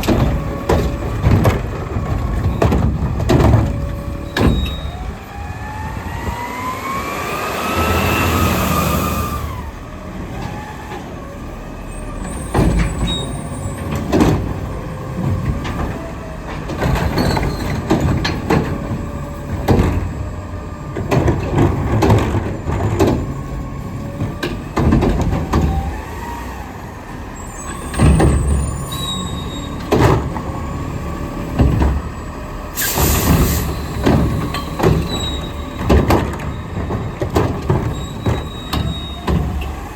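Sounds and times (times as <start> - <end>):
truck engine revving: 0.0 - 12.5
bangs and clatters of carts: 0.0 - 39.9
hydraulic whine: 3.9 - 10.8, 25.7 - 37.2
air brake hiss: 32.7 - 34.0.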